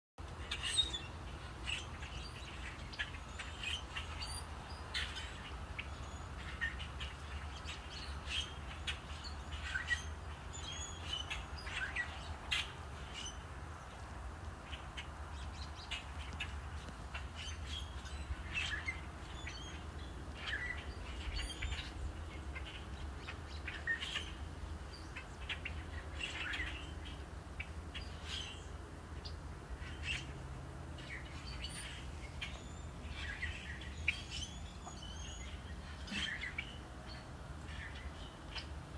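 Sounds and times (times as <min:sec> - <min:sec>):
songbirds chirping: 0:00.2 - 0:38.9.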